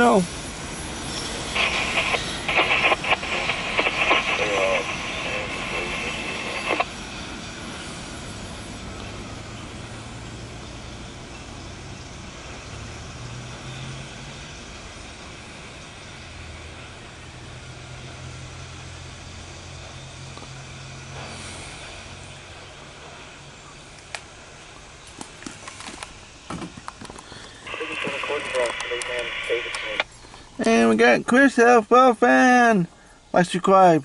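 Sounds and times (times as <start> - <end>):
freight train cars rumbling: 0.0 - 25.1
vehicle engines humming: 0.0 - 32.0.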